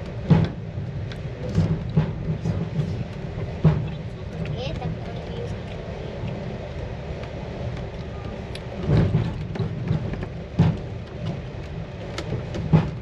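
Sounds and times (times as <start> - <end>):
train rumble from inside compartment: 0.0 - 13.0
sharp knocks and thuds: 0.2 - 0.6, 1.4 - 4.0, 8.8 - 11.5, 12.1 - 13.0.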